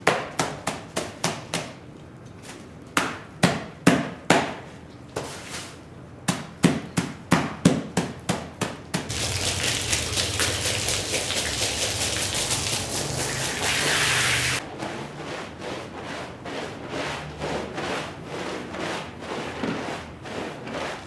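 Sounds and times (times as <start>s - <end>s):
spraying water: 9.1s - 14.6s.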